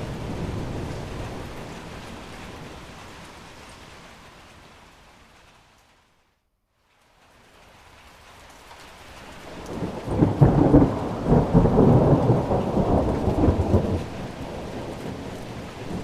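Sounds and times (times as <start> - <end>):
thunder rumbling: 0.0 - 3.4, 9.5 - 16.0
rain: 0.0 - 16.0.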